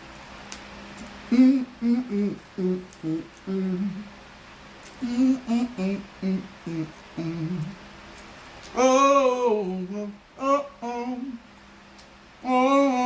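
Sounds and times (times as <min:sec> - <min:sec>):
person humming a tune: 0:01.3 - 0:04.1, 0:04.9 - 0:07.8, 0:08.7 - 0:11.4, 0:12.4 - 0:13.0.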